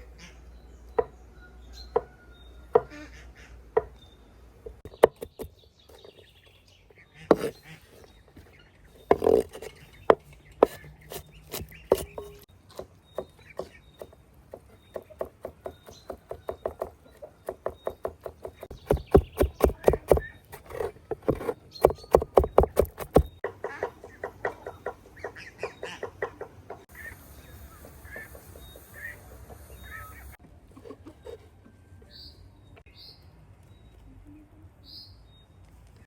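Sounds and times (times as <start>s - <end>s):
knife chopping on wooden board: 7.3s - 7.6s, 9.1s - 23.5s.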